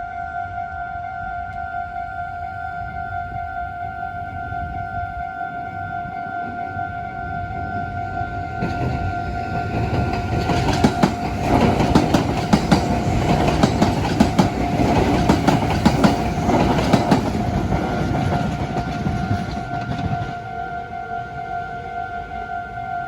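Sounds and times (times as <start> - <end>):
level crossing warning bell: 0.1 - 23.0
wheels clattering over rail joints: 4.1 - 20.4.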